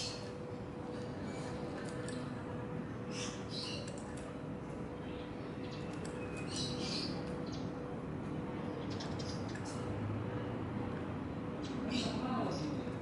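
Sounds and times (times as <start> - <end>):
steady hum: 0.0 - 13.0
small birds chirping: 3.1 - 4.3, 5.0 - 7.7, 8.7 - 9.9.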